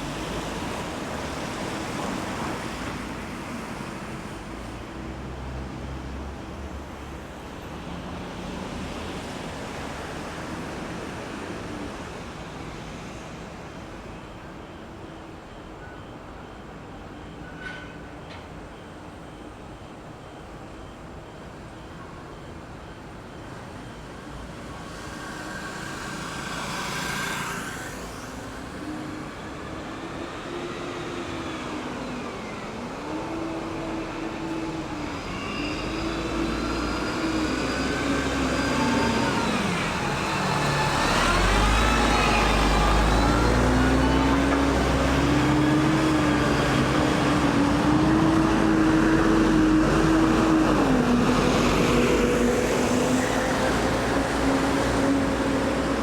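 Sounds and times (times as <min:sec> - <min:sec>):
vehicles passing: 0:24.7 - 0:56.0.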